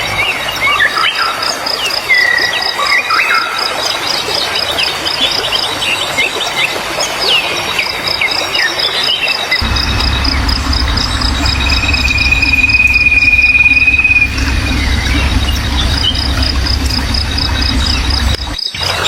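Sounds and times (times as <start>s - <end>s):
high wavering insect trill: 9.6s - 19.0s
insect chirping: 9.6s - 19.0s
steady low rumble: 9.6s - 19.0s.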